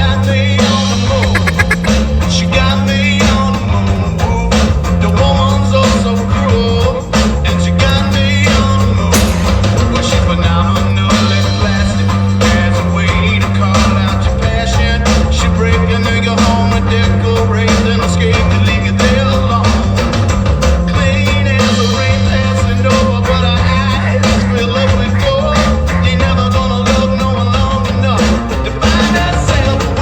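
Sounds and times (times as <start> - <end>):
person singing: 1.2 - 2.0
rock song with guitar and drums: 16.4 - 30.0.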